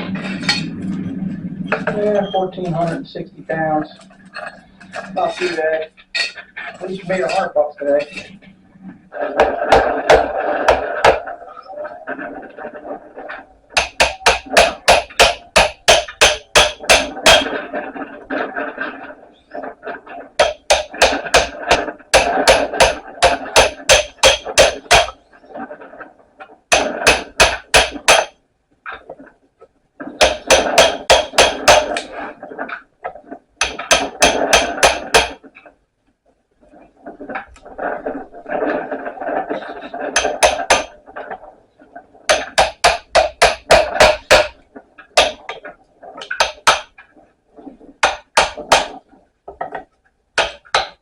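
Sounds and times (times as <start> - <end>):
hammer on chisel metal ringing: 13.8 - 17.5, 20.4 - 25.1, 26.7 - 28.3, 30.2 - 32.0, 33.6 - 35.4, 40.2 - 40.9, 42.3 - 44.5, 46.3 - 46.9, 48.0 - 48.9, 50.4 - 51.0.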